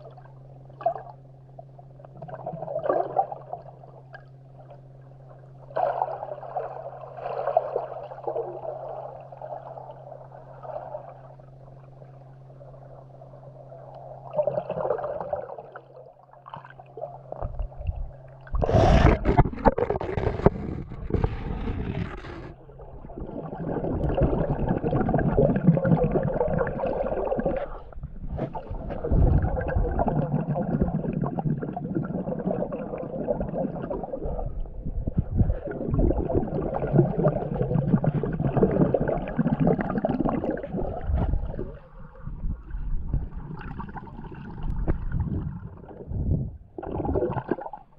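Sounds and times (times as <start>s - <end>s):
low steady hum: 0.0s - 47.9s
underwater gurgling water: 0.0s - 47.9s
water bubbling: 16.4s - 47.9s.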